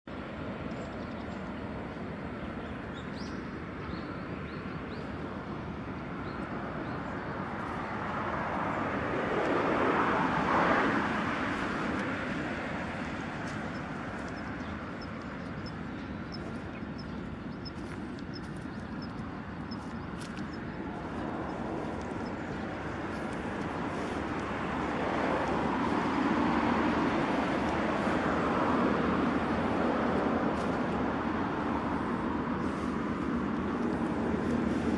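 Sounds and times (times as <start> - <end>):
steady outdoor hum: 0.1 - 34.9
car passing by: 6.6 - 16.8, 17.6 - 34.9
vehicle approaching: 6.7 - 34.9.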